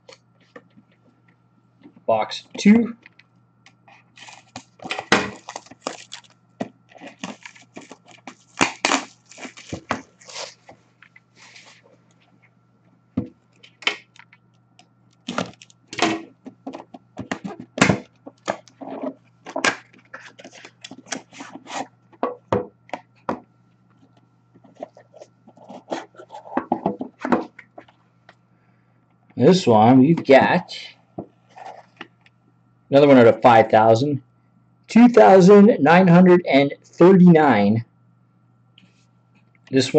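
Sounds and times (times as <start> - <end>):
packaging rustling and tearing: 4.1 - 10.8, 15.2 - 15.8, 19.5 - 21.9
cardboard clicks and crackles: 4.2 - 11.8, 15.2 - 18.8, 19.4 - 23.4.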